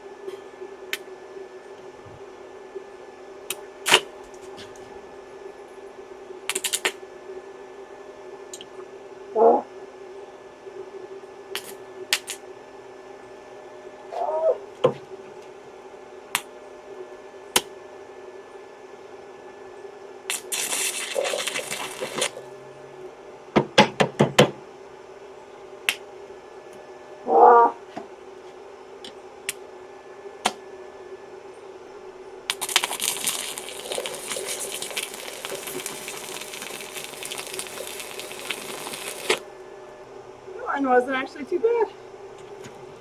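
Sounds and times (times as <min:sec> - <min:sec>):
steady electric hum: 0:00.0 - 0:43.0
welding arc crackling and sizzling: 0:06.5 - 0:07.0, 0:20.3 - 0:22.5, 0:32.5 - 0:39.5.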